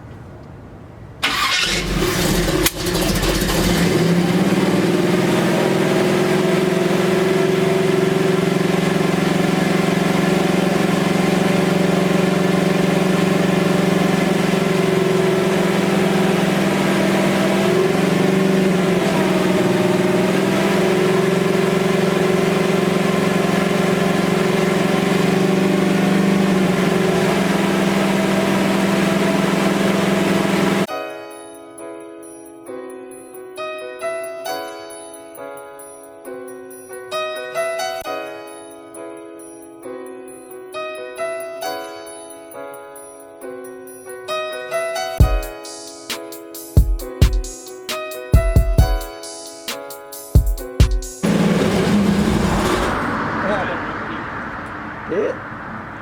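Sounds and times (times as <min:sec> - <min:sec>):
engine cranking on starter: 0:01.2 - 0:04.8, 0:51.2 - 0:53.6
engine fast idle: 0:01.2 - 0:04.8, 0:51.2 - 0:54.1.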